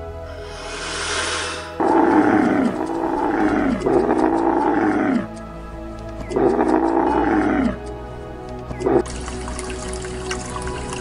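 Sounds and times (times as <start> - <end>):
background music: 0.0 - 11.0
tiger roaring: 0.6 - 5.4, 6.3 - 7.8, 8.8 - 9.1.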